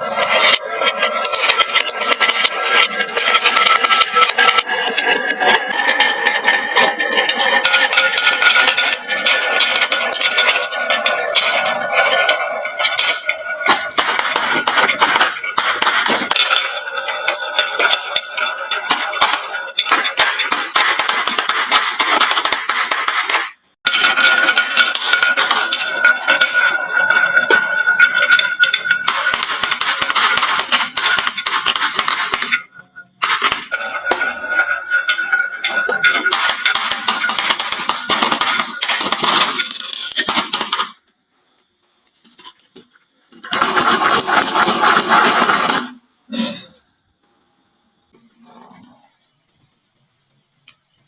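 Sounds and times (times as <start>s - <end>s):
marbles clattering down wooden run: 0.0s - 41.1s, 43.4s - 46.0s.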